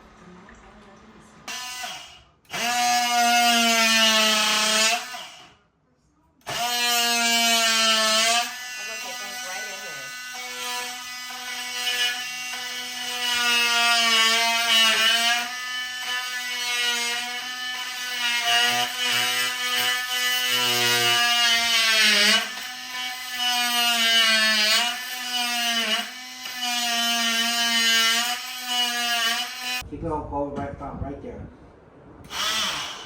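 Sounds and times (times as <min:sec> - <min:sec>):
power drill motor whine: 0:01.5 - 0:05.5, 0:32.3 - 0:33.0.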